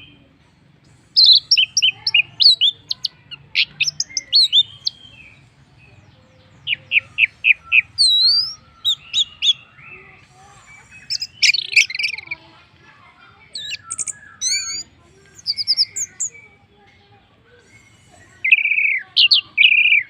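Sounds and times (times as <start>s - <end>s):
thrush singing whistled notes: 6.6s - 10.0s, 13.6s - 16.6s, 17.6s - 20.0s.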